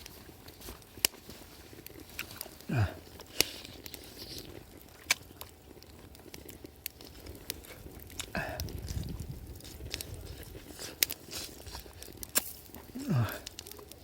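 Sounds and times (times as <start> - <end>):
low grunt: 2.6 - 3.1, 8.3 - 8.8, 12.9 - 13.6.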